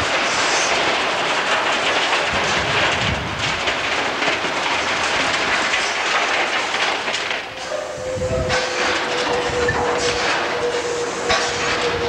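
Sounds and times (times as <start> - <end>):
irregular rail clacks: 0.0 - 12.0
train wheels on rail: 0.0 - 12.0.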